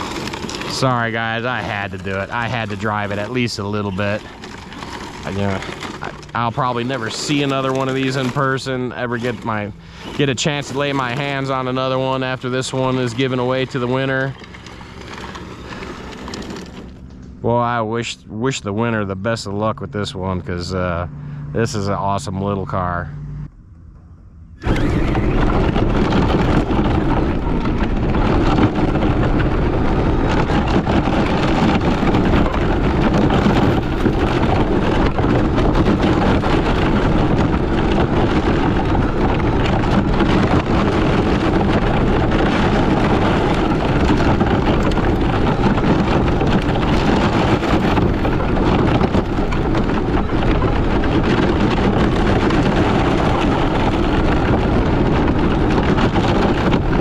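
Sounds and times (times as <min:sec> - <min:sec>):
rc car tyres crackling on dirt: 0:00.0 - 0:17.8, 0:24.6 - 0:57.0.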